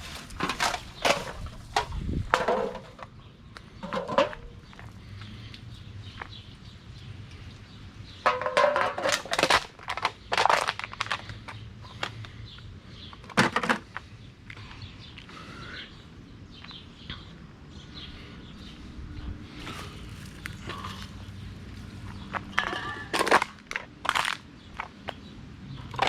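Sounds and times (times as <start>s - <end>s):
litter rustling and clattering: 0.0s - 3.1s.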